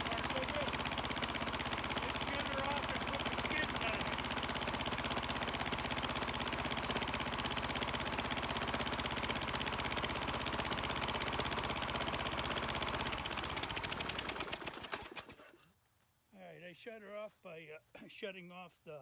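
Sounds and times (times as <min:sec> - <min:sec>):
engine running steadily: 0:00.0 - 0:15.2.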